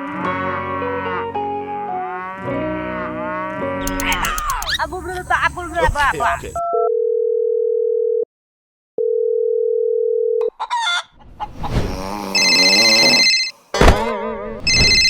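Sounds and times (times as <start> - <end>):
electronic telephone tone: 9.0 - 10.4, 12.4 - 13.5, 14.7 - 15.0
high electronic beeping: 14.7 - 15.0.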